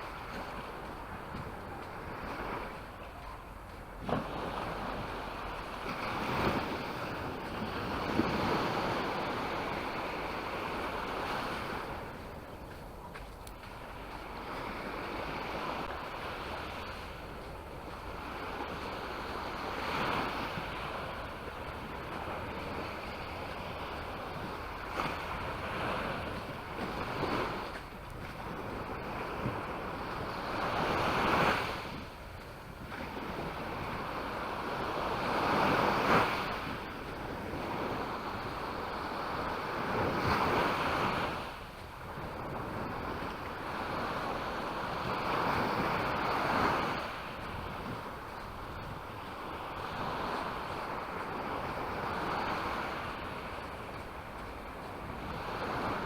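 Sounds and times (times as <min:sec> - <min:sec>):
waves breaking on shore: 0:00.0 - 0:56.0.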